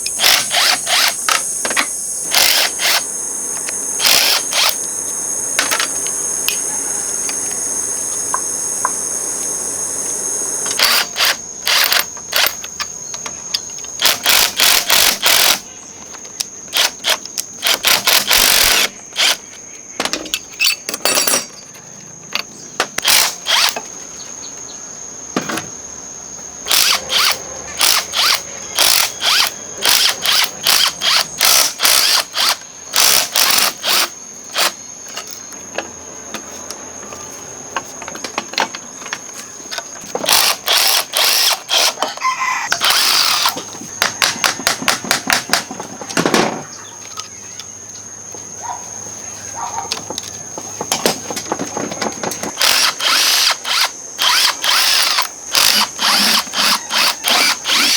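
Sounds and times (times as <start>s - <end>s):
high-pitched whine: 0.0s - 12.0s
power tool trigger bursts: 0.0s - 12.6s, 14.0s - 15.6s, 16.7s - 19.4s, 23.0s - 23.8s, 26.7s - 34.8s, 40.2s - 42.1s, 42.7s - 43.6s, 52.6s - 57.9s.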